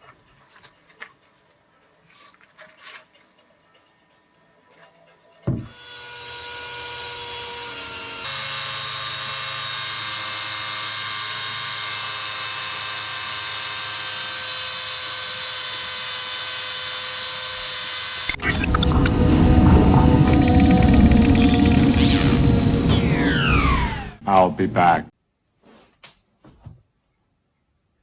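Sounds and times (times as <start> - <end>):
cordless drill running: 5.7 - 18.4.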